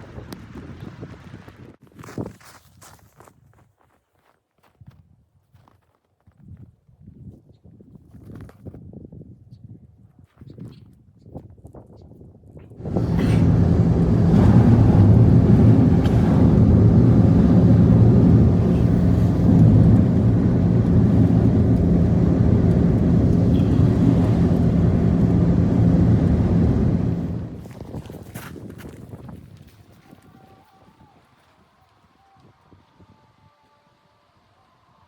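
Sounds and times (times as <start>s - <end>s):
engine running loudly: 12.8s - 27.8s.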